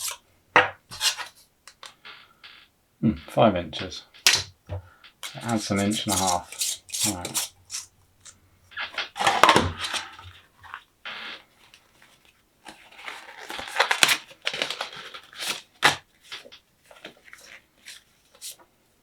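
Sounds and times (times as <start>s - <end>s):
packaging rustling and crinkling: 5.2s - 18.6s.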